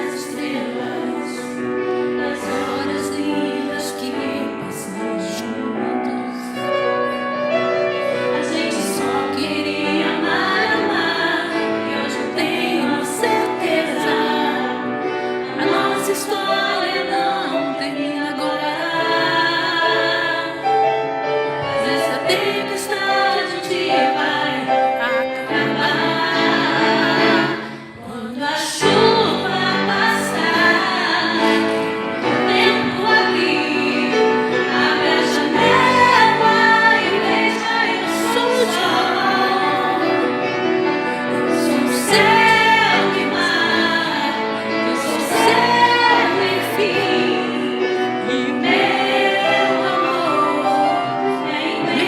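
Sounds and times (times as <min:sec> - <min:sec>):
woman singing: 0:00.0 - 0:07.4, 0:08.2 - 0:20.6, 0:21.8 - 0:40.3, 0:41.4 - 0:52.0.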